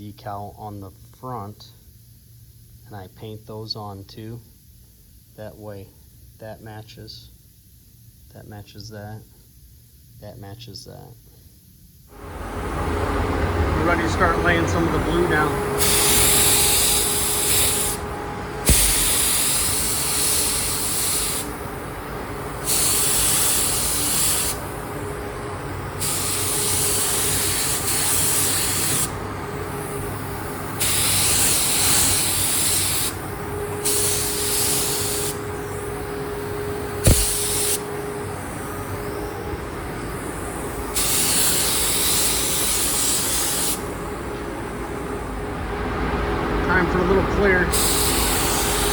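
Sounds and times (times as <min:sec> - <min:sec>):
paint sprayer hissing: 0:15.2 - 0:39.2, 0:40.1 - 0:44.8, 0:47.7 - 0:48.9
sharp click: 0:18.7 - 0:19.3, 0:37.1 - 0:37.6.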